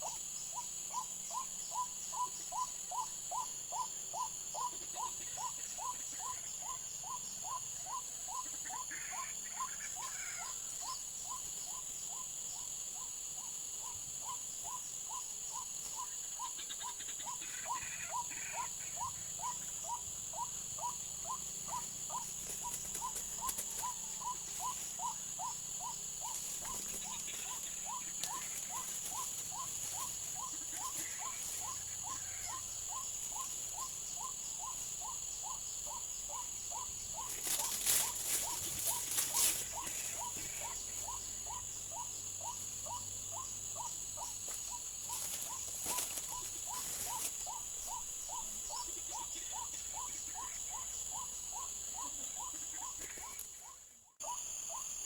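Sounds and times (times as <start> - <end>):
crackling rustles: 26.2 - 31.8, 37.2 - 40.7, 44.4 - 47.6.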